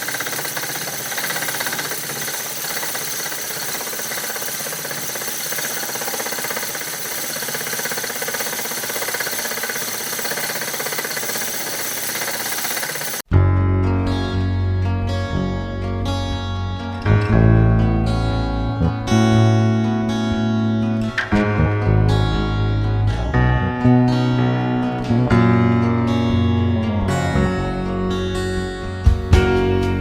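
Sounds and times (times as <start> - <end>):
wood lathe rasping and knocking: 0.0 - 13.2
acoustic guitar music: 13.3 - 30.0.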